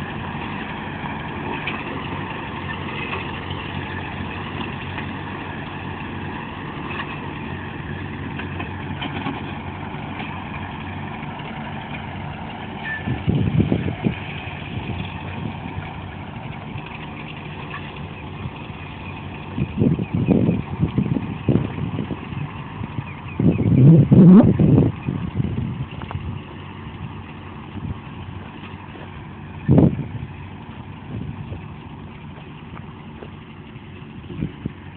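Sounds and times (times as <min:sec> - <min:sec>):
tractor engine idling: 0:00.0 - 0:34.9.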